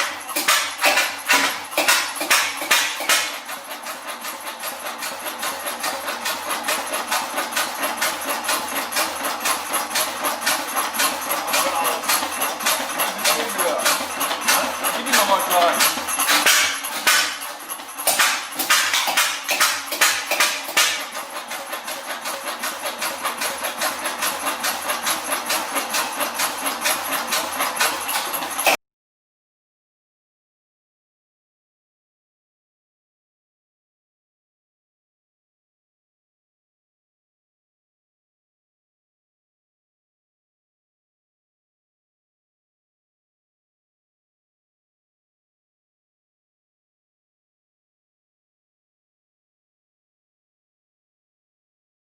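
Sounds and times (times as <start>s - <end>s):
diesel engine knocking: 0.0s - 28.8s.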